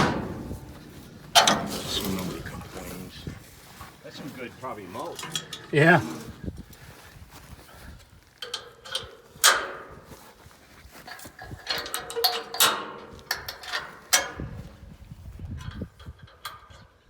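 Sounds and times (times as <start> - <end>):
metal clanking and rattling: 0.0 - 7.0, 8.4 - 10.3, 10.9 - 14.9.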